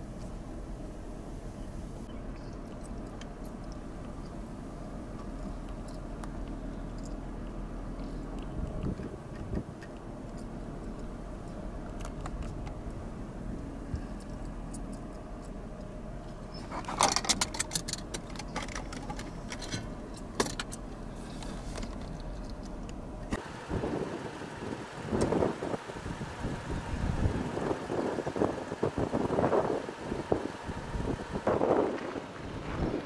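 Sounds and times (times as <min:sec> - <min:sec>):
vehicle engine humming: 0:00.0 - 0:33.0
clicks and rattles: 0:16.6 - 0:20.8.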